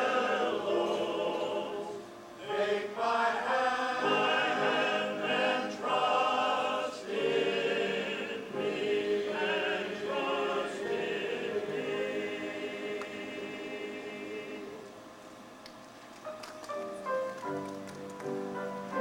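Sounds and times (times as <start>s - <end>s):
choir singing with vibrato: 0.0s - 15.1s.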